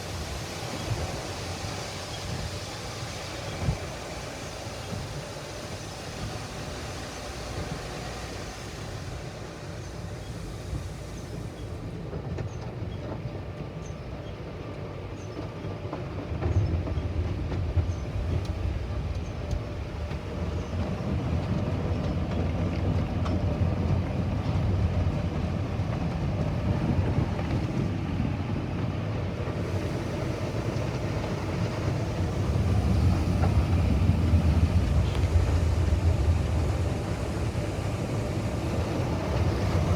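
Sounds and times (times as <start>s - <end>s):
car wash machinery rumble: 0.0s - 12.1s, 18.1s - 39.9s.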